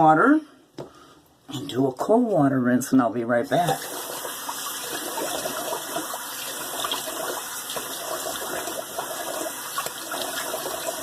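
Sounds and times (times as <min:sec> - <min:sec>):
tap water running into sink: 0:03.7 - 0:11.0.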